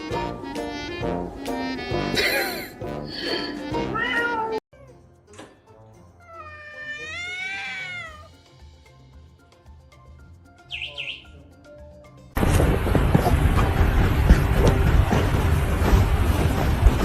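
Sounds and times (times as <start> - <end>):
cat meowing: 3.9 - 4.6, 6.2 - 8.3.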